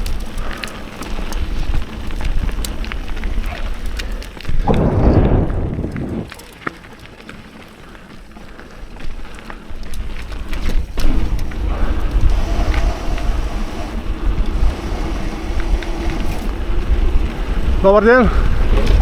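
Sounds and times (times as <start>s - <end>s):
wind rushing over microphone: 4.4s - 6.4s, 10.8s - 19.0s.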